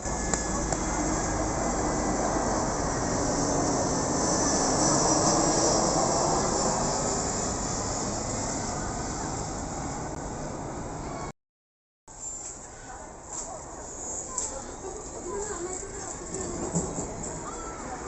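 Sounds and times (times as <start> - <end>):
plane passing overhead: 0.0 - 11.3.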